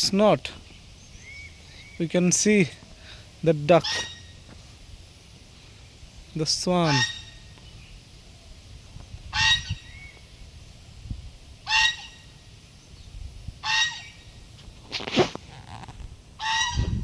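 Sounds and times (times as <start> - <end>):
waterfowl calling: 3.0 - 4.5, 6.6 - 7.6, 9.3 - 10.2, 11.6 - 12.4, 13.6 - 14.4, 16.4 - 17.0.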